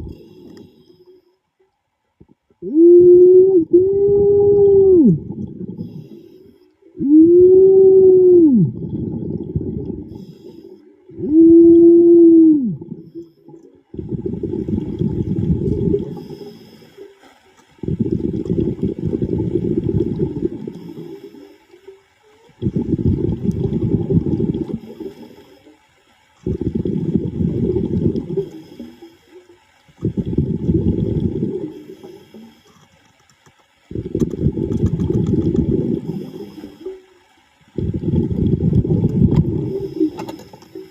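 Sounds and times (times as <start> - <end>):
pitched hum: 2.2 - 16.6
diver exhaling bubbles underwater: 2.6 - 6.2, 6.9 - 16.7, 17.8 - 21.4, 22.5 - 25.4, 26.4 - 29.1, 30.0 - 32.7, 33.9 - 37.0, 37.7 - 40.9.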